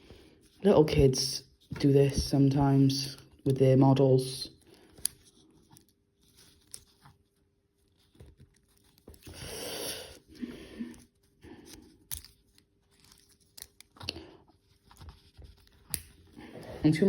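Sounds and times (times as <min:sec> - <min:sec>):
small parts clicking and tapping: 0:12.0 - 0:14.2.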